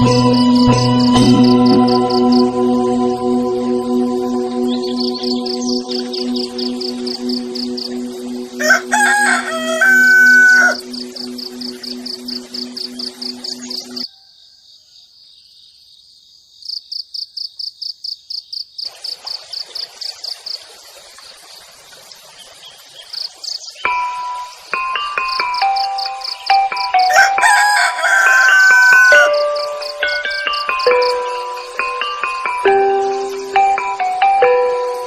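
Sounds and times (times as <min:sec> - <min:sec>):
insect chirping: 0:03.8 - 0:27.2, 0:28.2 - 0:35.0
rooster crowing: 0:08.6 - 0:10.9, 0:27.1 - 0:29.6.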